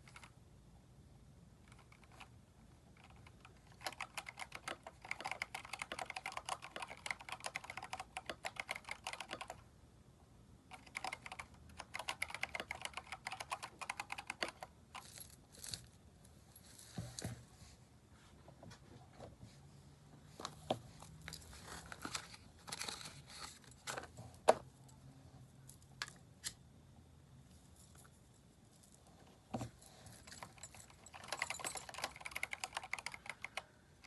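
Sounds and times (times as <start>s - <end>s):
typing on mechanical keyboard: 1.6s - 9.7s, 10.7s - 15.0s, 30.2s - 33.8s.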